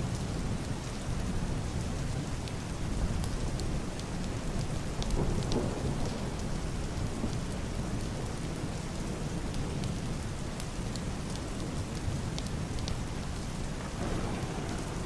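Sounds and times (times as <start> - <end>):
heavy rain on roof and window: 0.0 - 15.0
distant thunder rumble: 13.6 - 15.0.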